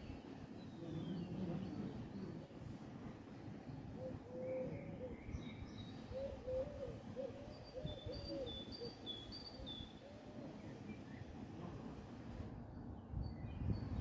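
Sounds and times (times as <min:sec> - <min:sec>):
low arching bird calls: 0:03.7 - 0:11.6.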